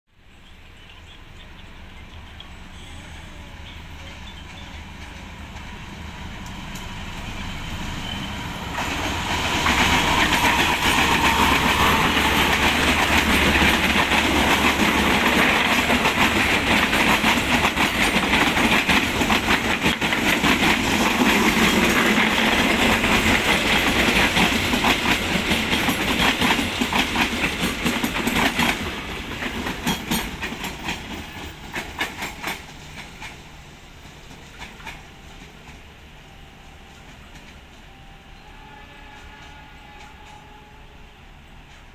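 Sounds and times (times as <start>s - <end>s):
passing train rumble: 0.2s - 41.9s
wheels clicking over rail joints: 9.6s - 35.9s.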